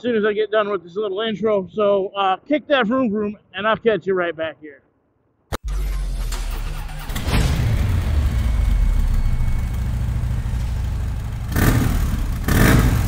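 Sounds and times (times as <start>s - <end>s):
engine bursts: 5.6s - 13.0s
motorcycle engine rumbling: 6.7s - 13.0s.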